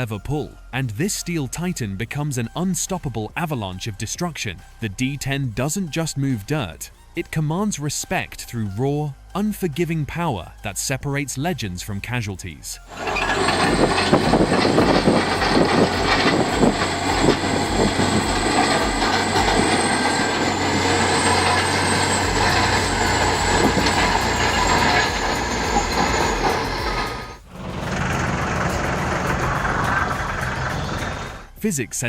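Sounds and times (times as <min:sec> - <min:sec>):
heavy machine noise: 0:12.9 - 0:31.5
bulldozer diesel engine under load: 0:12.9 - 0:31.6
high mechanical whine: 0:12.9 - 0:31.6.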